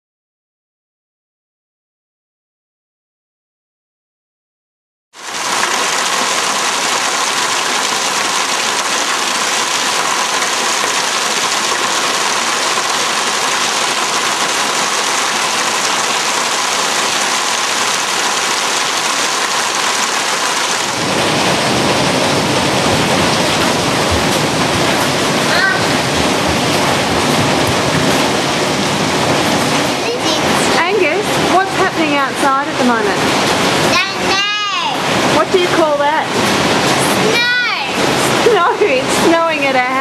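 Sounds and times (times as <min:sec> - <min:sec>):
hailstones pelting down: 0:05.2 - 0:34.6.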